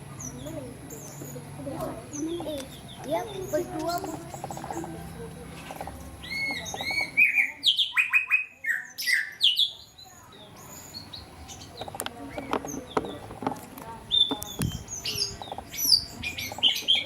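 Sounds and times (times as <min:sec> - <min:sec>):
bird sharp chirps: 0:06.2 - 0:10.0.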